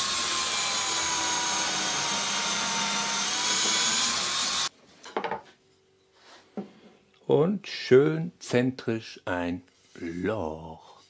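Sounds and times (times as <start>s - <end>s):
electric drill boring: 0.0s - 4.7s.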